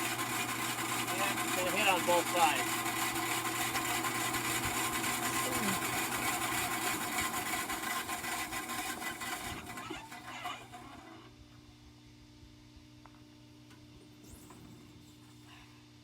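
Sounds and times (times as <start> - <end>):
bandsaw sawmill running: 0.0 - 11.3.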